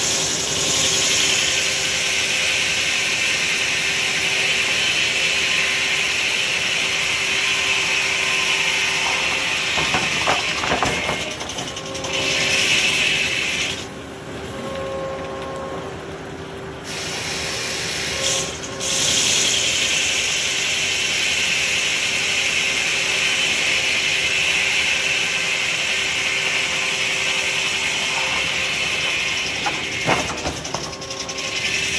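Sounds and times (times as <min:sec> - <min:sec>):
power tool cutting wood: 0:18.1 - 0:31.9.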